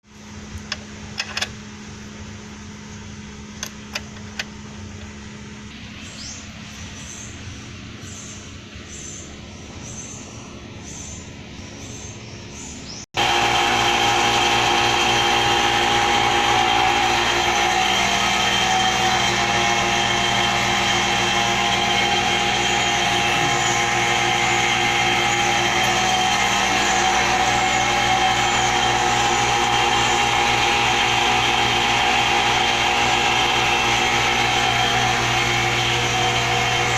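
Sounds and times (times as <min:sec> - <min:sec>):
motor humming and whining: 0:12.9 - 0:36.9.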